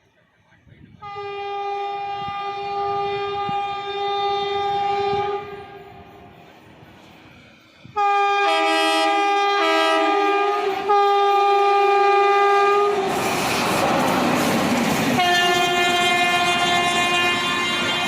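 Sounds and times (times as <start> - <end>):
train rumble: 0.0 - 18.0
train air horn blasts: 1.0 - 6.3, 7.9 - 13.4, 15.2 - 18.0.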